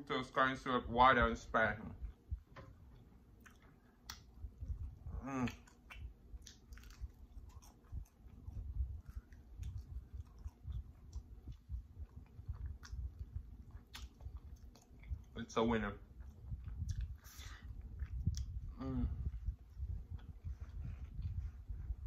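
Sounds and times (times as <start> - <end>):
wet chewing with clicks: 2.0 - 18.8, 19.4 - 22.0
person humming: 18.7 - 19.3.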